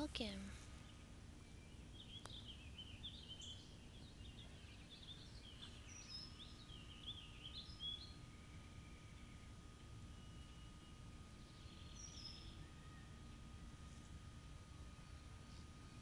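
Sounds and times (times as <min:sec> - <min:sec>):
faint songbird singing: 0:00.2 - 0:14.2.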